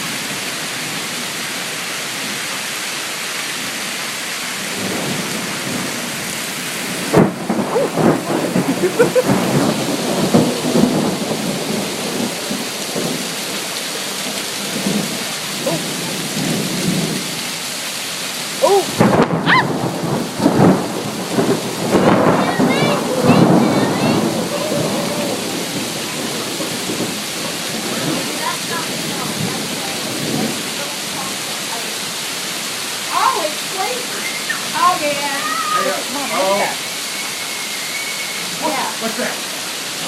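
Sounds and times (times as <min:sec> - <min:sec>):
rain hissing: 0:00.0 - 0:40.0
hailstones clattering on hard surfaces: 0:20.0 - 0:31.4.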